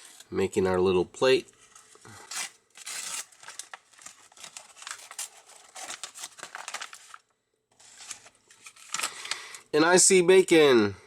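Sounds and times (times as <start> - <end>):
paper packaging rustling and crinkling: 1.5 - 9.7.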